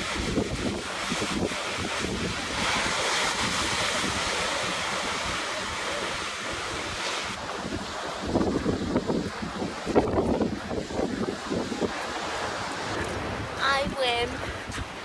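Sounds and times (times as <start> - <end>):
wave breaking and hissing: 0.0 - 13.6
surf washing onto beach: 0.0 - 15.0
wind buffeting microphone: 0.0 - 15.0.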